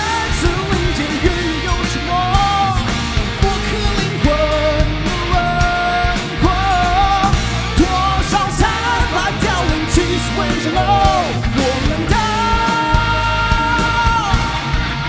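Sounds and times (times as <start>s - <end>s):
heavy drums: 0.0s - 15.0s
live rock band playing: 0.0s - 15.0s
person singing: 0.0s - 15.0s.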